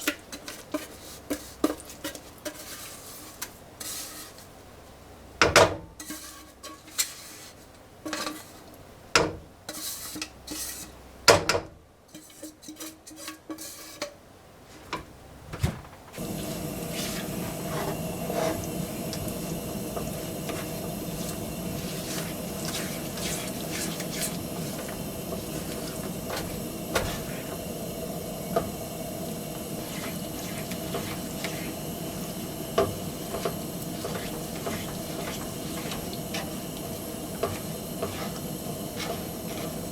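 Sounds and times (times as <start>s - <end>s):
stove hissing: 15.7s - 39.9s.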